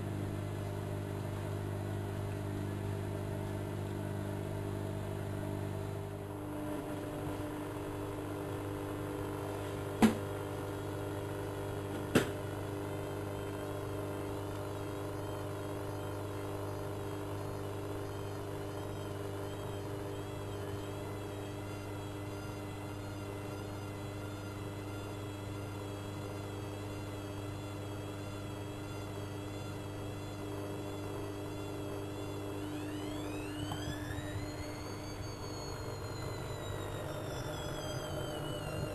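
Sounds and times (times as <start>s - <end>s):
washing machine motor hum: 0.0s - 38.9s
whining tones sweeping in pitch: 17.4s - 38.9s.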